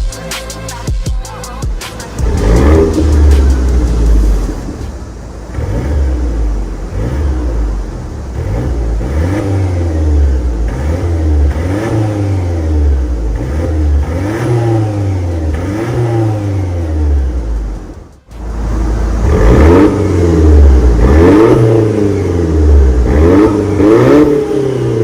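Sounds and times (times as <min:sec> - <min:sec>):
car engine revving: 0:00.1 - 0:25.0.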